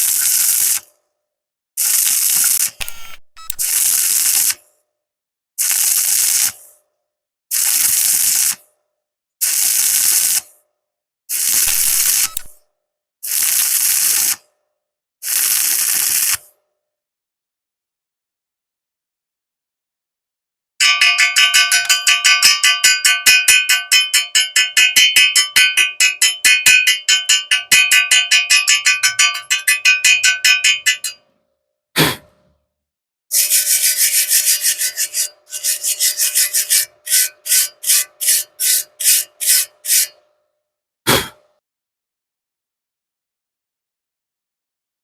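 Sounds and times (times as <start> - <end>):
hand tool striking steel pipe: 20.8 - 31.2, 33.3 - 40.2.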